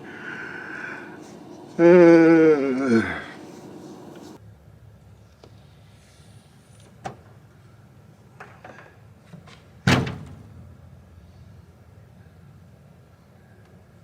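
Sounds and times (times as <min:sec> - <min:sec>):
door slamming shut: 0:09.8 - 0:10.6.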